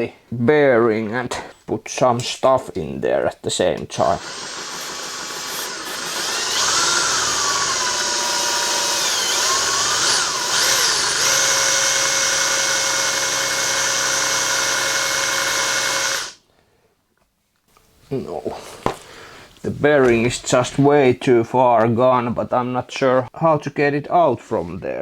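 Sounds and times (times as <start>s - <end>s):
electric drill whining: 4.2s - 16.4s.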